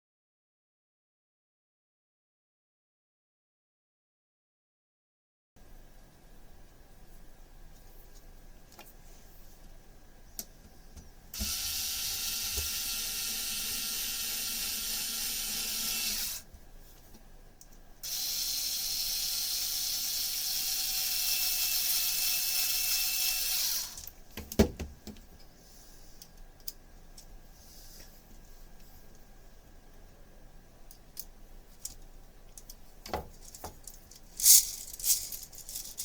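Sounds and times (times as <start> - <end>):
small electric motor running: 11.4 - 16.4, 18.0 - 24.1.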